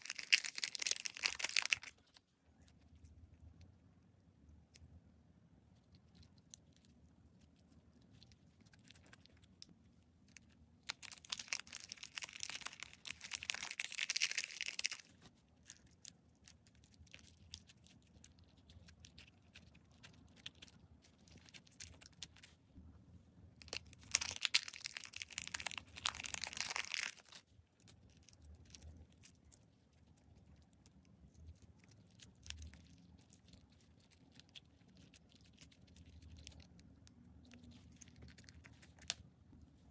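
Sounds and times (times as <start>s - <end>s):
dense crackling of slime: 0.0s - 2.2s, 10.8s - 22.4s, 23.6s - 39.3s.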